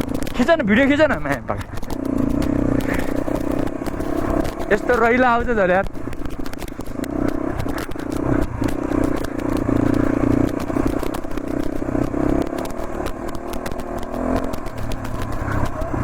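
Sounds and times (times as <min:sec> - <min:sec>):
motorcycle engine running: 0:00.0 - 0:16.0
sharp clicks and clattering: 0:00.0 - 0:16.0.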